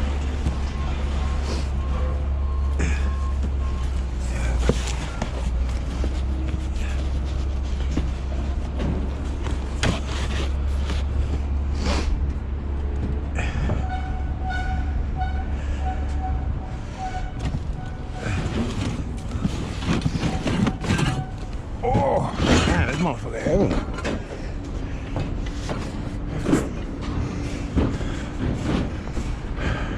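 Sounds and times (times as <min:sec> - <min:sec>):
backup alarm beeping: 0:00.0 - 0:05.7
heavy engine running: 0:00.0 - 0:29.9
metal clanks and knocks: 0:17.4 - 0:29.4.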